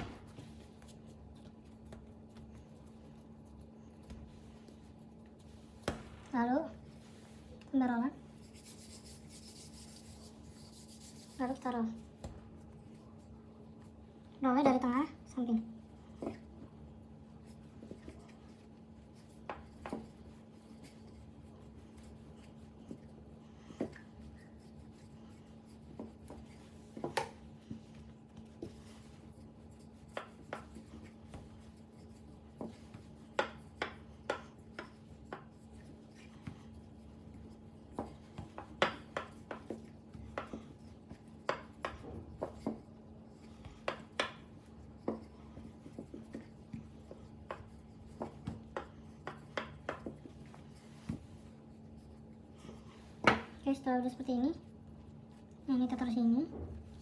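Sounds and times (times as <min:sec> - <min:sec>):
rolling pin rubbing dough: 0:00.0 - 0:14.0, 0:16.1 - 0:56.0
light knocks of rolling pin: 0:37.9 - 0:51.5.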